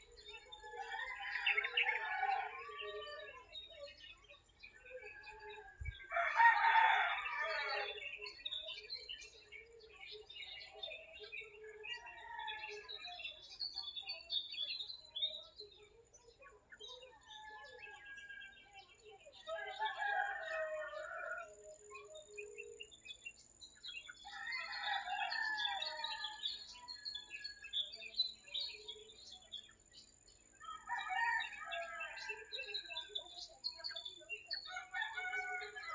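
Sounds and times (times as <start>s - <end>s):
small birds chirping: 0.0s - 35.9s
rooster crowing: 6.1s - 8.0s, 19.5s - 21.6s, 30.6s - 32.5s, 34.8s - 35.9s.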